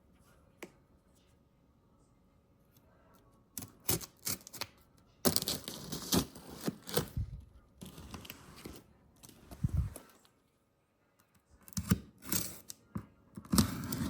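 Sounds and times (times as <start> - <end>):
packaging tearing and crinkling: 5.3 - 7.2.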